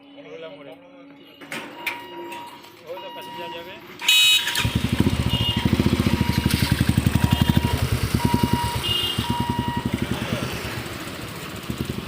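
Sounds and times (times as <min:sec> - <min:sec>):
short high beeps: 0:01.3 - 0:04.6, 0:05.2 - 0:09.9
vehicle engine pulsing: 0:04.5 - 0:12.0.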